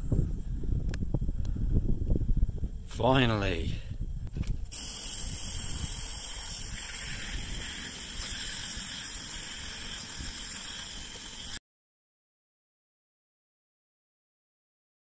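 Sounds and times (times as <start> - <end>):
furnace fire roaring under air blast: 4.6 - 11.6.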